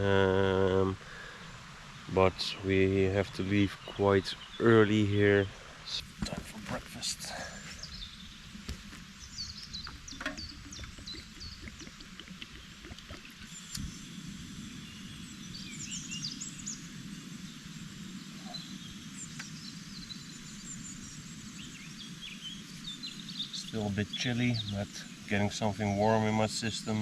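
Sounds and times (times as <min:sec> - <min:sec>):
steady low rush: 0:00.0 - 0:08.6
small birds chirping: 0:00.0 - 0:27.0.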